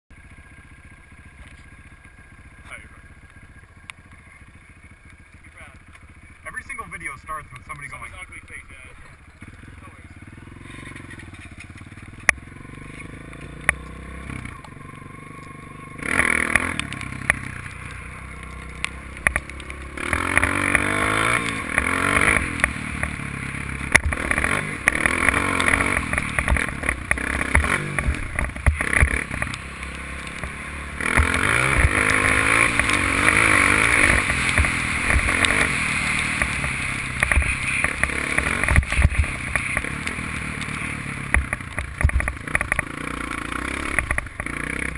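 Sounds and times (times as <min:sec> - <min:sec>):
dirt bike engine revving: 0:00.2 - 0:44.9
sharp knocks and clatter: 0:10.7 - 0:13.9, 0:18.7 - 0:23.2, 0:23.9 - 0:43.1.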